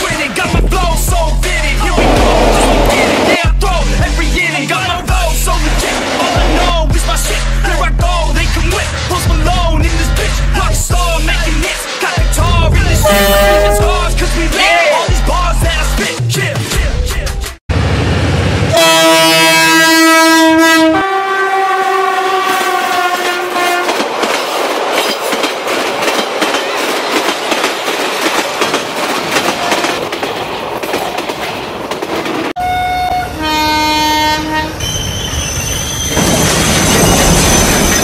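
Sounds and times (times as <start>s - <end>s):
train horn blasts: 13.0s - 14.2s, 18.7s - 24.0s, 32.6s - 34.8s
train clattering on rails: 22.6s - 32.6s, 34.8s - 38.0s
train wheels squealing: 34.7s - 38.0s.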